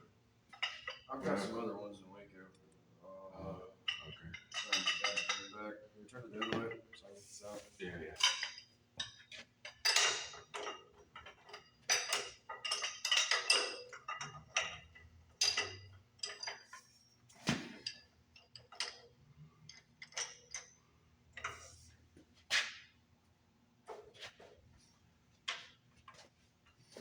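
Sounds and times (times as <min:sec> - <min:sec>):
metal tools clanking on engine: 0:03.9 - 0:05.6, 0:08.2 - 0:17.0.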